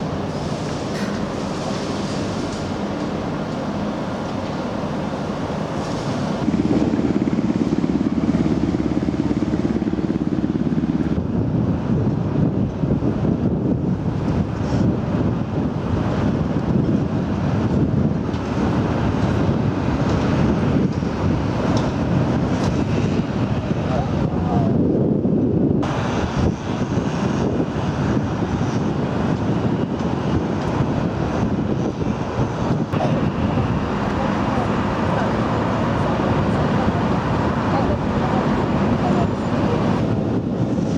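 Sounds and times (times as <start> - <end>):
boat engine drone: 0.0 - 11.2, 25.8 - 40.9
boat engine running: 32.9 - 40.9
water rushing: 33.0 - 40.6.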